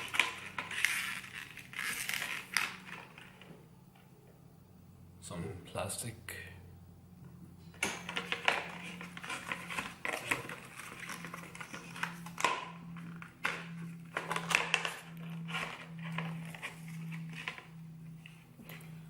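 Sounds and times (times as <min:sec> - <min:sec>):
plastic packaging crinkling: 0:00.0 - 0:03.5, 0:08.1 - 0:18.9
low steady hum: 0:00.0 - 0:19.0.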